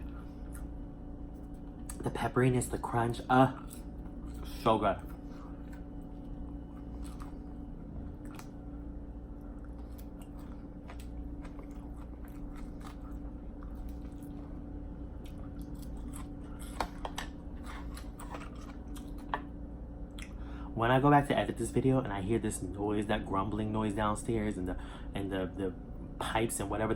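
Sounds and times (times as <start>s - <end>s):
person chewing food: 0.0s - 2.0s, 3.5s - 19.5s
low hum and rumble: 0.0s - 26.9s.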